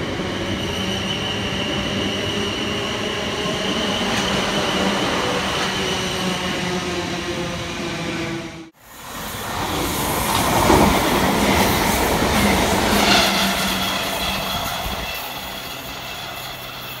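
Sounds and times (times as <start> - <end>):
thin high squeal: 12.9 - 17.0.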